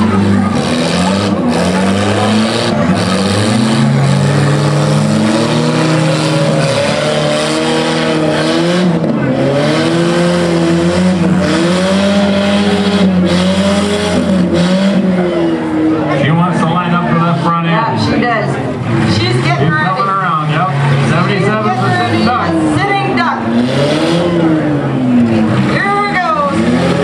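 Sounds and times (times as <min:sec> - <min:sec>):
car engine revving up and down: 0:00.0 - 0:27.0
steady engine note: 0:00.0 - 0:27.0.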